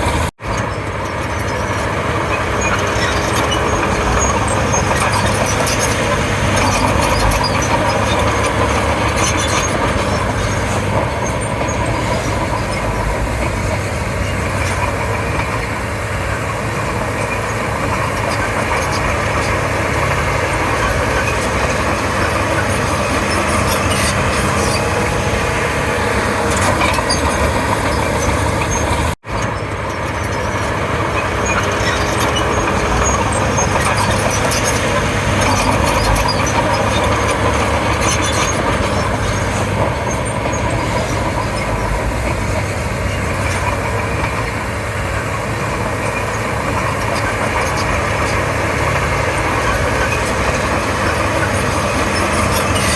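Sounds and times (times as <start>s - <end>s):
bulldozer diesel engine running: 0.0s - 52.9s.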